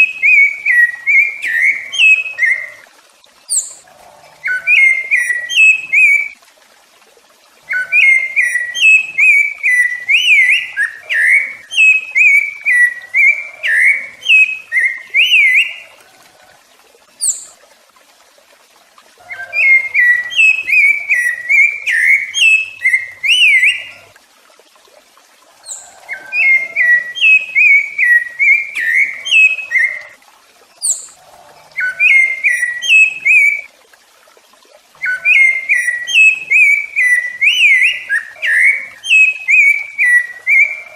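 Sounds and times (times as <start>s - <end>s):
thrush singing fluty warbles: 0.0s - 2.8s, 3.5s - 6.4s, 7.7s - 16.0s, 19.2s - 24.1s, 25.6s - 30.2s, 35.0s - 40.9s.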